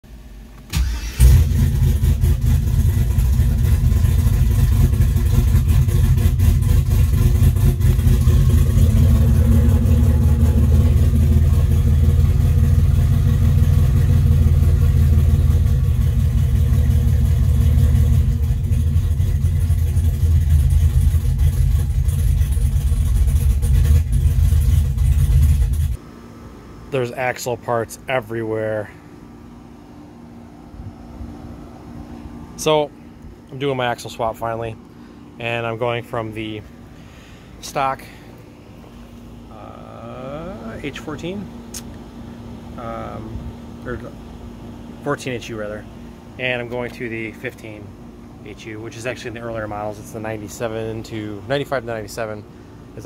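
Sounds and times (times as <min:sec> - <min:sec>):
car engine starting and running: 0:00.4 - 0:26.0.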